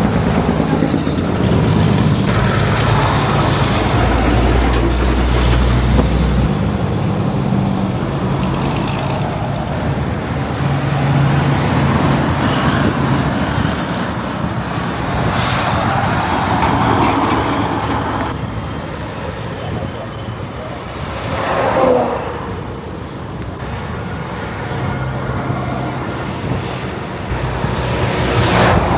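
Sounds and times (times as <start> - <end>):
truck diesel engines running: 0.0 - 28.9
air brakes hiss: 15.2 - 16.4.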